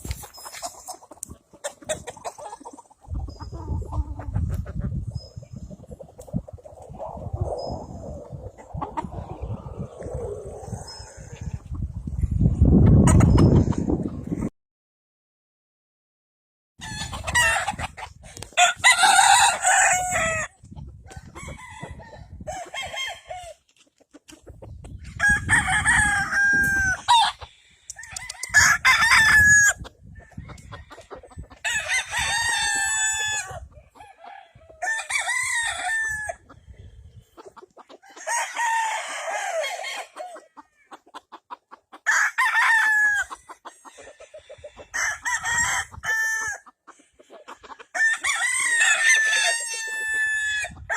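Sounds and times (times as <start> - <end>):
roosters crowing: 7.0 - 11.7, 16.8 - 23.6, 25.0 - 36.6, 38.0 - 41.0, 42.0 - 50.9.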